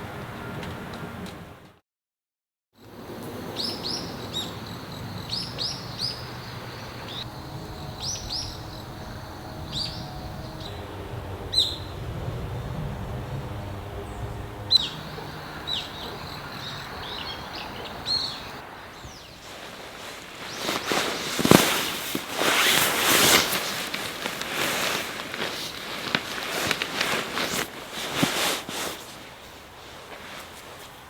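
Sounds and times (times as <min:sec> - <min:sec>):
small birds chirping: 0:03.6 - 0:12.1, 0:13.5 - 0:23.4
low background rumble: 0:07.1 - 0:18.6.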